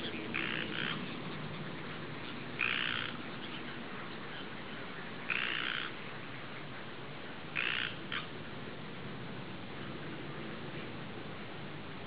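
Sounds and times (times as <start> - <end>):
harsh bird calls: 0.0 - 6.1, 7.6 - 8.4
low background hiss: 0.0 - 12.0.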